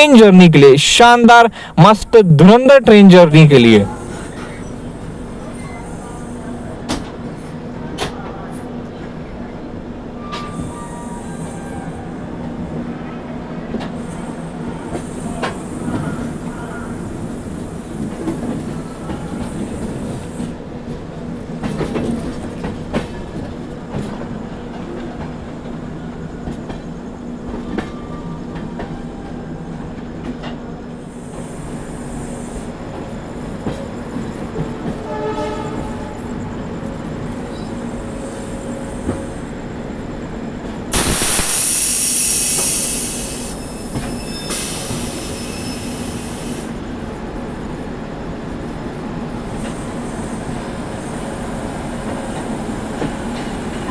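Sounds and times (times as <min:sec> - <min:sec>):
train rumbling: 0:00.0 - 0:53.9
loud hiss: 0:41.0 - 0:46.8.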